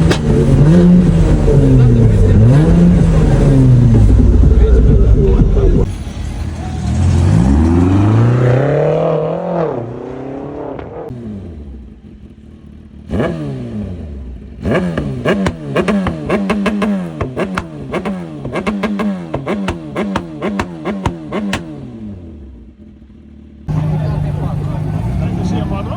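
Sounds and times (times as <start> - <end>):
engine revs with exhaust cracks: 0.0 - 5.9, 13.1 - 22.8
car engine accelerating hard: 0.0 - 12.0, 23.6 - 25.9.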